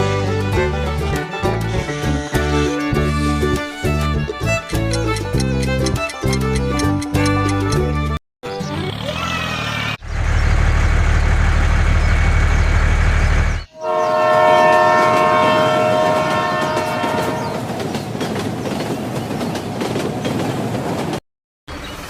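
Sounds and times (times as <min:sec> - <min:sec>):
train rumbling: 0:08.9 - 0:22.0
multi-tone train horn: 0:13.8 - 0:17.7.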